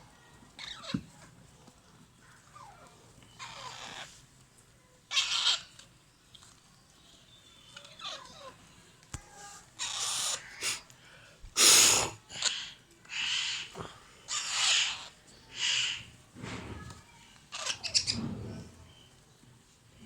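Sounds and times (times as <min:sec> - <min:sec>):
parakeet chicks begging calls: 0:03.4 - 0:04.1, 0:05.1 - 0:05.7, 0:09.8 - 0:10.8, 0:12.4 - 0:13.7, 0:14.3 - 0:16.1.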